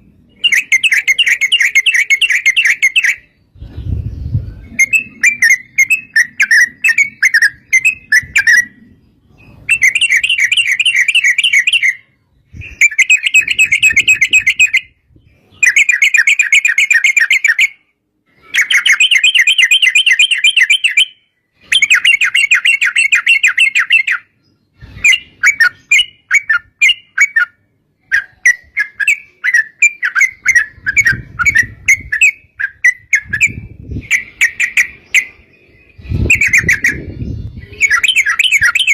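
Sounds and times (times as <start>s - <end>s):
bird singing trilled song: 0.0s - 38.9s
bird chattering notes: 0.4s - 3.3s, 4.6s - 12.1s, 12.7s - 15.0s, 21.8s - 38.9s.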